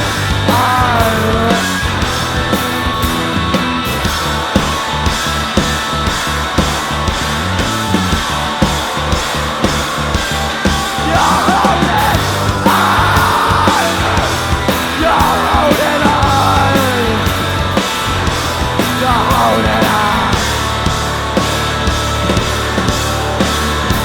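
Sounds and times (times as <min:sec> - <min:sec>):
drum hits: 0:00.0 - 0:24.0
live rock band playing: 0:00.0 - 0:24.0
person singing: 0:00.5 - 0:01.8, 0:11.0 - 0:17.3, 0:18.8 - 0:20.6.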